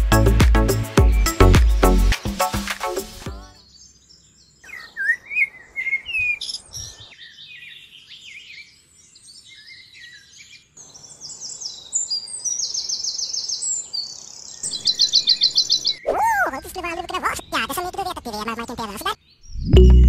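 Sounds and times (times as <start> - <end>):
bird trill: 3.5 - 8.8, 9.6 - 17.6
birds chirping and singing: 3.5 - 19.6.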